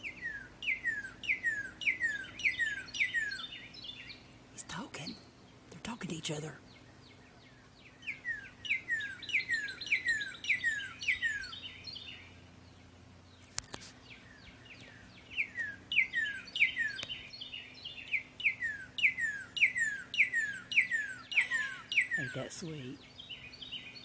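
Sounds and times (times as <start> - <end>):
bird singing whistles: 0.0 - 4.2, 8.1 - 12.2, 14.4 - 22.4.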